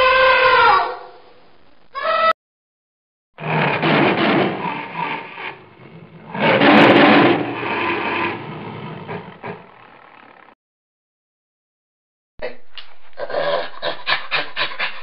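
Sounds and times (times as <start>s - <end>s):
tiger roaring: 3.4s - 10.5s.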